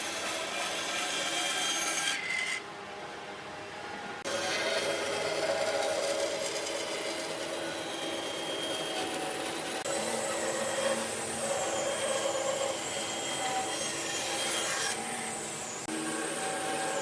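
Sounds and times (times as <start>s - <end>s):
tool sawing wood: 4.3s - 15.2s.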